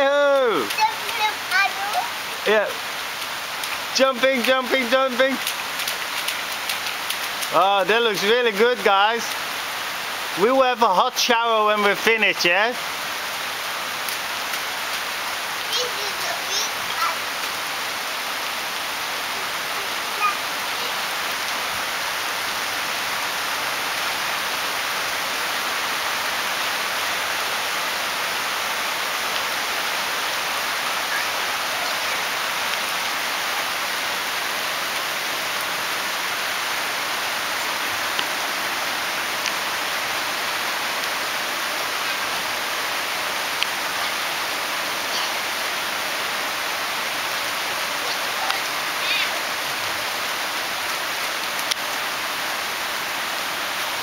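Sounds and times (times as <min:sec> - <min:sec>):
rain hissing: 0:00.0 - 0:54.0
faint raindrop ticks: 0:00.3 - 0:02.2, 0:03.2 - 0:09.4, 0:14.0 - 0:15.1, 0:38.1 - 0:38.4, 0:39.4 - 0:39.6, 0:43.6 - 0:44.2, 0:51.4 - 0:52.0.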